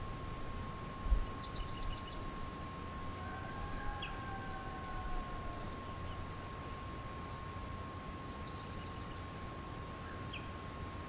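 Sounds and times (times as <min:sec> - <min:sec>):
small bird twittering trill: 0:00.4 - 0:04.2.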